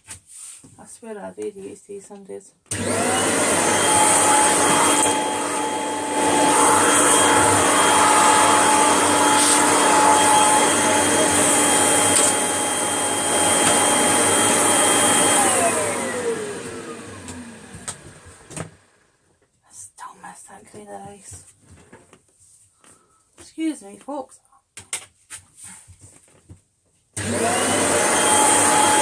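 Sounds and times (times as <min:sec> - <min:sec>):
vacuum cleaner motor whine: 0:02.7 - 0:19.1, 0:27.2 - 0:29.0.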